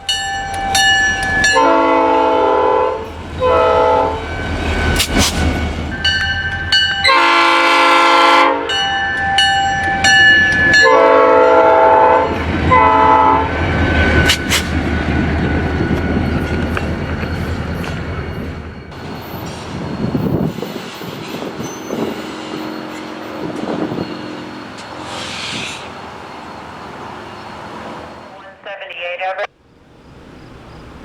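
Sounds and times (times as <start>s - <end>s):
locomotive horn blasts: 0.0s - 4.3s, 7.0s - 13.6s
train clattering on rails: 0.0s - 28.3s
locomotive engine rumble: 8.8s - 31.0s.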